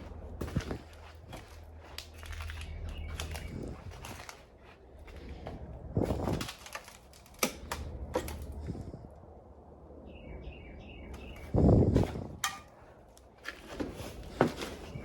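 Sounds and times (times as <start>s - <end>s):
footfalls on debris: 0.0s - 8.5s, 11.9s - 15.0s.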